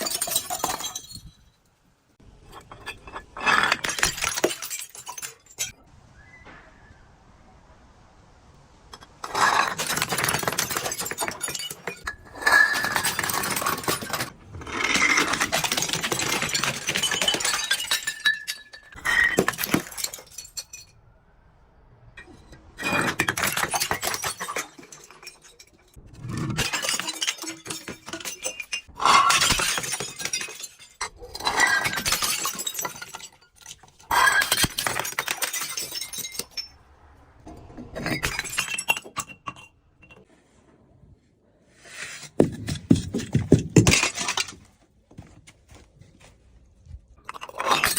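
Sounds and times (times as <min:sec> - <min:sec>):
glass bottles crushing: 0:00.0 - 0:01.6, 0:02.3 - 0:05.8, 0:09.2 - 0:20.9, 0:22.3 - 0:36.8, 0:38.0 - 0:40.3, 0:42.2 - 0:44.8, 0:47.2 - 0:47.9.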